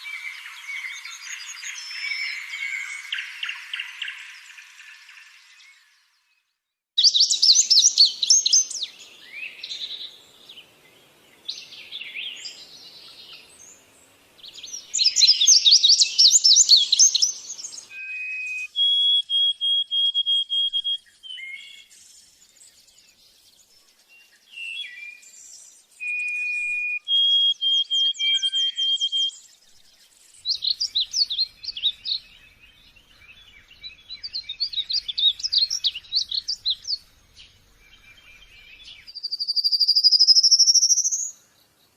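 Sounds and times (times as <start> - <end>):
songbirds chirping trills: 0.0 - 41.9
short whistled bird notes: 17.9 - 21.9, 24.6 - 29.5.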